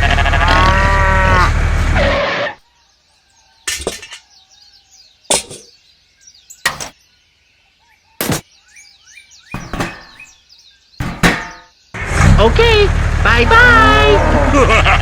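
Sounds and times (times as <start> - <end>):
faint bird chirps: 2.6 - 11.0.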